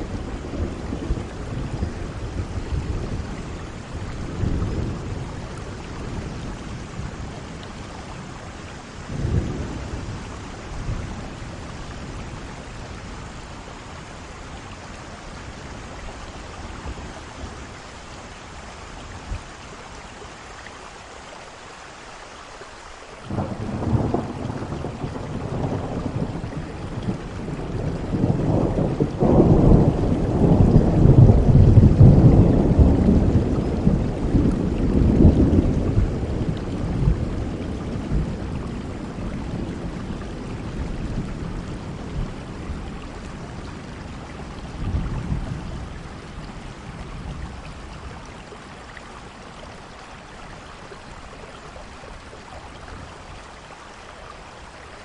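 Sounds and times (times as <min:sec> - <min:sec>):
rolling thunder: 0:00.0 - 0:13.9, 0:23.3 - 0:48.2
heavy rain: 0:00.0 - 0:55.0.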